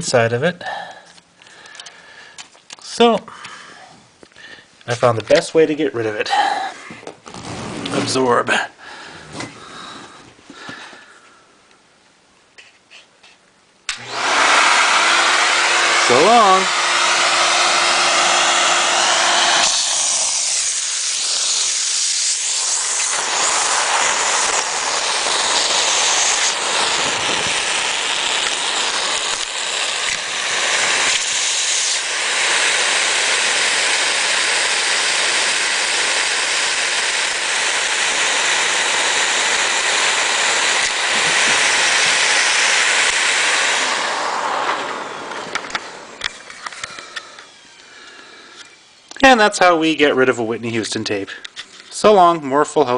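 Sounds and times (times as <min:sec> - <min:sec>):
vacuum cleaner running: 0:13.9 - 0:49.8.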